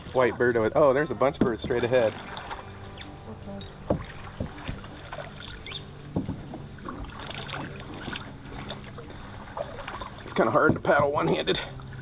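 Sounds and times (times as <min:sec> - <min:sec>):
paddle splashing in water: 0:00.0 - 0:12.0
sharp knocks: 0:03.8 - 0:04.9, 0:06.1 - 0:06.6.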